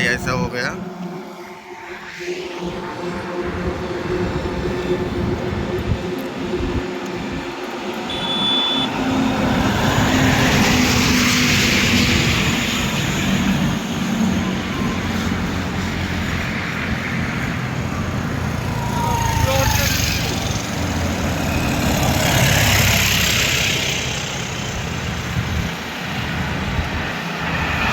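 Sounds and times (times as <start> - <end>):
heavy vehicle passing: 8.8 - 27.9.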